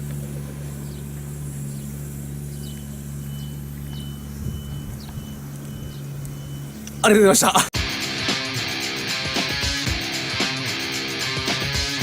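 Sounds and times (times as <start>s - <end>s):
low mechanical hum: 0.0s - 7.7s
faint high beeps: 2.4s - 7.2s.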